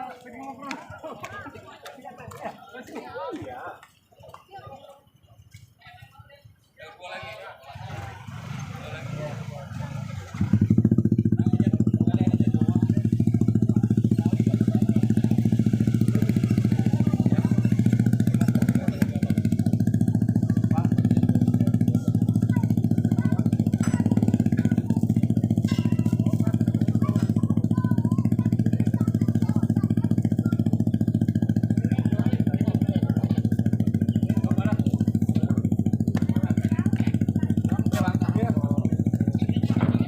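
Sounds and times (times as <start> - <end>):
diesel engine drone: 8.0 - 40.0.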